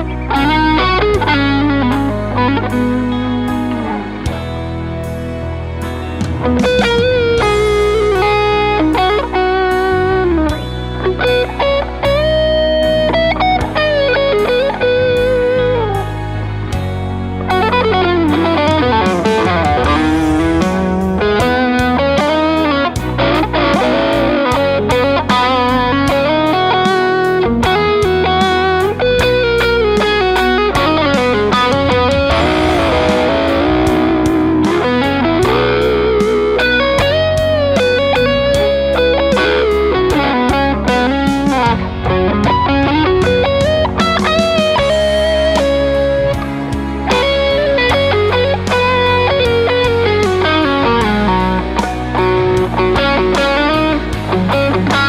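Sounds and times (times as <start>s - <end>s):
backing track with drums: 0.0s - 55.0s
electric guitar lead lines: 0.0s - 55.0s.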